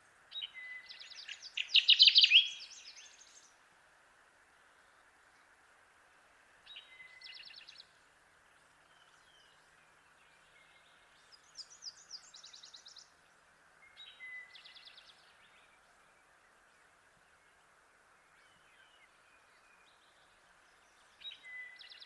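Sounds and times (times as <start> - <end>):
faint steady hiss: 0.0 - 22.0
warbler singing: 0.3 - 3.6, 8.6 - 17.6.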